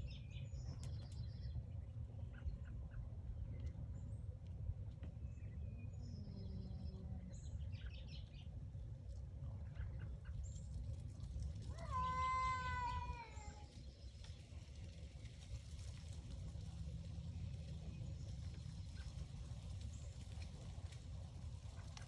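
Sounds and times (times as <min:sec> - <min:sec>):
steady low rumble: 0:00.0 - 0:22.0
cat yowling: 0:11.7 - 0:13.6.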